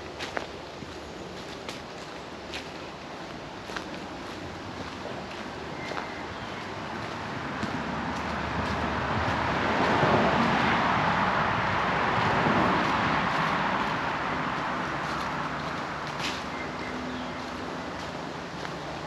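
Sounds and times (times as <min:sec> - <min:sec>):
car passing: 0:04.5 - 0:19.0.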